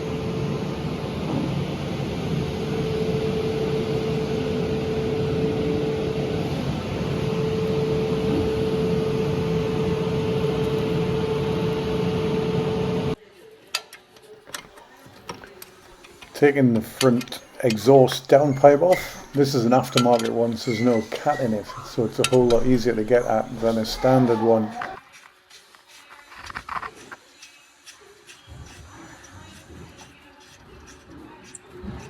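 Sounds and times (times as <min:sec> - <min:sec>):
machine drone with whine: 0:00.0 - 0:13.2, 0:17.9 - 0:25.0.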